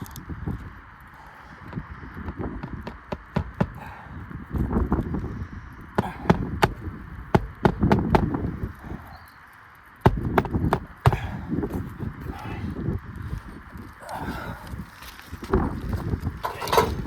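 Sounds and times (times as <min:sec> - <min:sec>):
scraping and rustling shingles: 0:00.0 - 0:17.0
hammer striking pry bar: 0:06.0 - 0:08.5.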